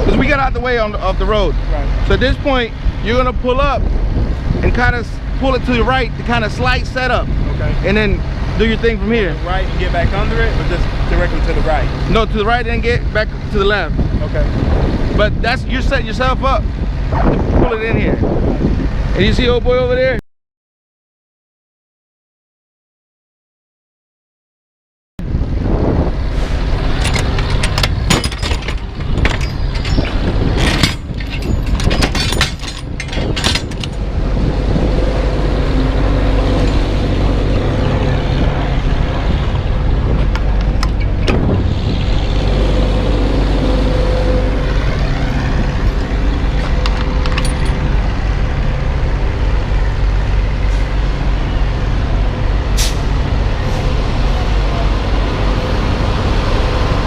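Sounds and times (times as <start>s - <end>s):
diesel engine running: 0.0s - 19.3s, 25.2s - 57.0s
knocks and rattles: 26.8s - 34.4s, 44.5s - 48.2s.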